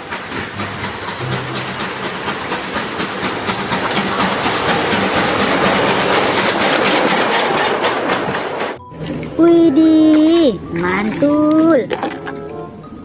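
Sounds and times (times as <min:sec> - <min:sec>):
steady hiss: 0:00.0 - 0:06.4
train wheels clickety-clack: 0:00.0 - 0:08.8.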